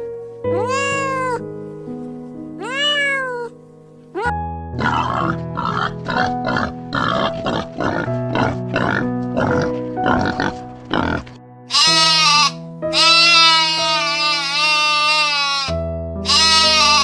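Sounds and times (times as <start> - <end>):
background music with held notes: 0.0 - 17.0
drawn-out animal call: 11.7 - 17.0.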